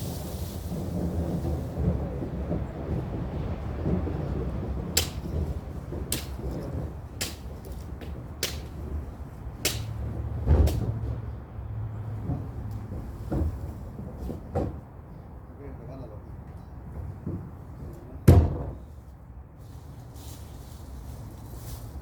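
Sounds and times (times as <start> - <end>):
steady low rumble: 3.6 - 10.8
machete cutting brush stems: 5.0 - 5.4, 6.1 - 7.8, 8.4 - 8.8, 9.7 - 10.0.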